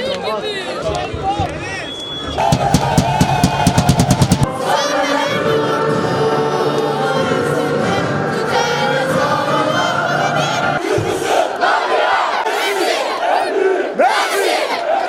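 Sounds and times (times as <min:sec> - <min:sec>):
drum beats: 0:02.4 - 0:04.6
crowd singing a chant: 0:02.4 - 0:15.0.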